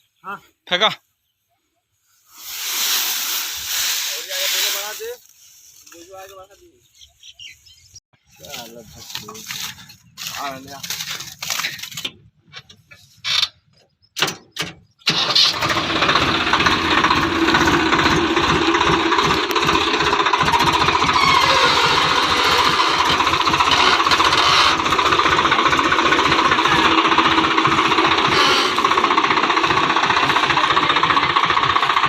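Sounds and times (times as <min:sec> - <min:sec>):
tractor diesel engine running: 0:08.3 - 0:32.0.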